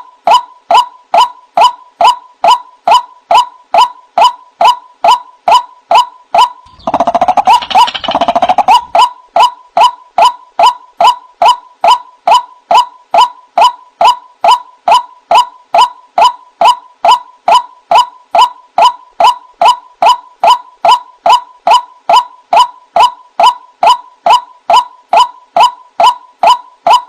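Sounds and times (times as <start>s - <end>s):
bird repeating sharp note: 6.6s - 9.1s
bird gurgling: 6.7s - 9.1s.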